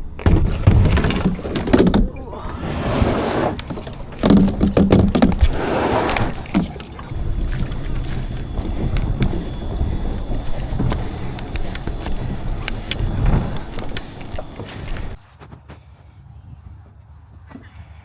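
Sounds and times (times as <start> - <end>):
wind rumble on microphone: 0.0 - 15.2
paddle knocking on plastic hull: 0.2 - 2.3, 3.2 - 15.2
paddle splashing through water: 0.3 - 15.2.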